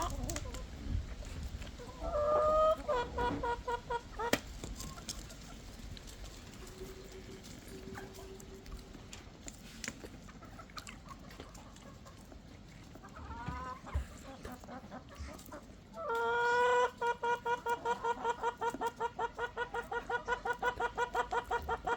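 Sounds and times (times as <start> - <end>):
chicken calling and clucking: 0.0 - 21.9.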